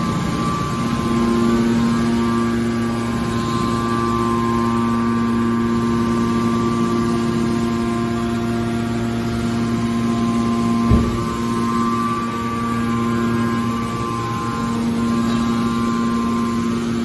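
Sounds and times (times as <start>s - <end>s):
industrial machinery humming: 0.0s - 17.0s
low thump: 10.9s - 11.6s.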